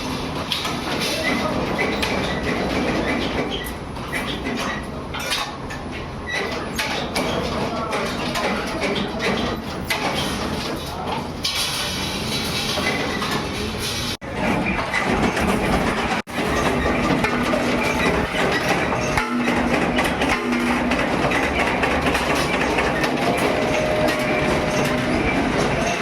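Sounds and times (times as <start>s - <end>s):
metal-working machinery clattering: 0.0s - 26.0s.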